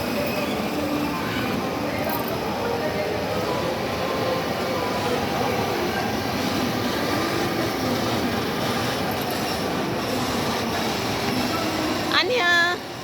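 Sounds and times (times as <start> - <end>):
ride vehicle rumble and rattle: 5.1 - 12.7.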